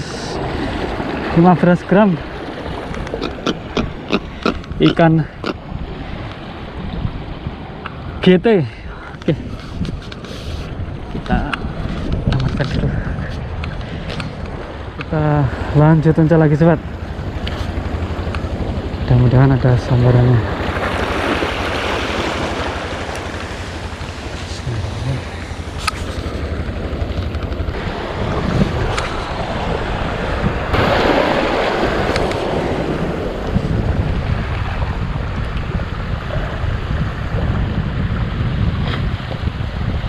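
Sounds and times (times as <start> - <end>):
wind buffeting microphone: 0.0 - 40.0
waves washing against rocks: 20.0 - 40.0.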